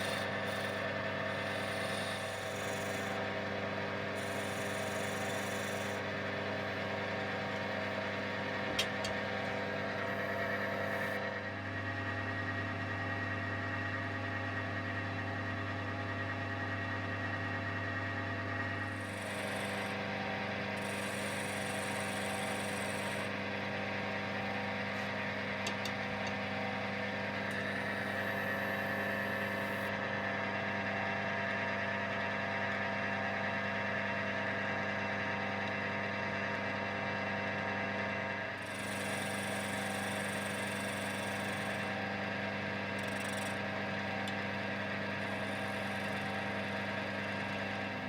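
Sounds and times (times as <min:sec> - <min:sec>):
electric wood lathe motor hum: 0:00.0 - 0:11.4, 0:18.7 - 0:30.0, 0:38.4 - 0:48.0.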